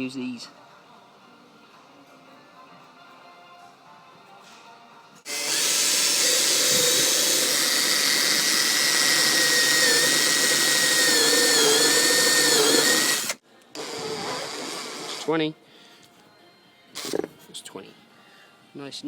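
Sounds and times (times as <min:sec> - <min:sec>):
power drill boring through plastic: 0:05.3 - 0:15.3, 0:17.0 - 0:17.3.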